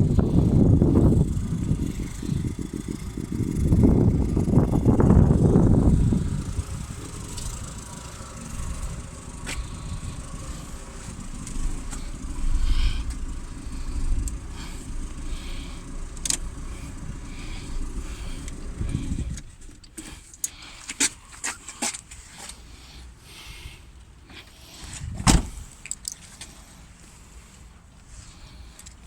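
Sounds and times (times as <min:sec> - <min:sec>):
car engine rumbling: 0:00.0 - 0:29.0
sharp clicks: 0:16.1 - 0:16.6.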